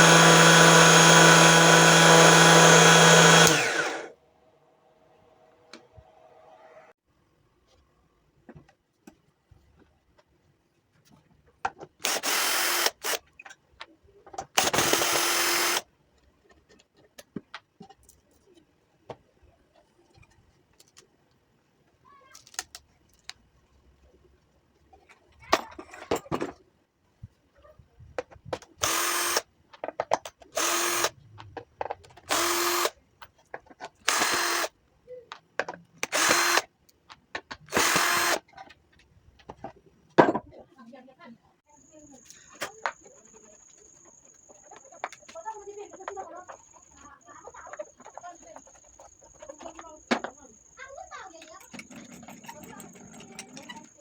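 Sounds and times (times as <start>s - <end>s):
power drill motor bursts: 0.0s - 4.1s, 12.0s - 13.2s, 14.6s - 15.8s, 28.8s - 29.4s, 30.6s - 31.1s, 32.3s - 32.9s, 34.1s - 34.7s, 36.0s - 36.7s, 37.7s - 38.4s.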